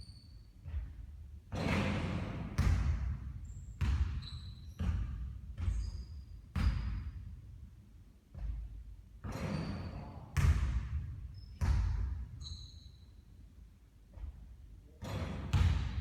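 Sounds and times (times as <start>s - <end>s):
basketball bouncing on court: 0.6s - 7.3s, 8.3s - 12.5s, 15.0s - 16.0s.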